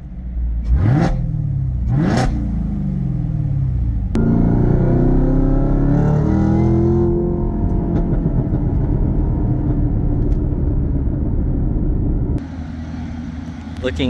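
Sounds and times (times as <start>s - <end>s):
car engine revving and idling: 0.0s - 14.0s.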